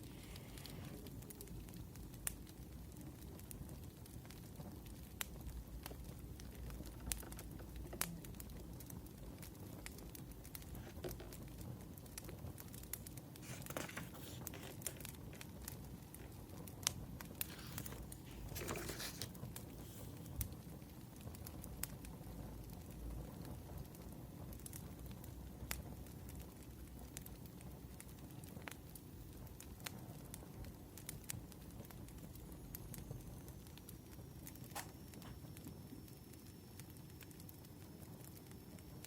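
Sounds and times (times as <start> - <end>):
fire popping: 0.0 - 39.0
firewood crackling: 0.0 - 39.0
rustling: 13.4 - 15.6, 17.4 - 20.4.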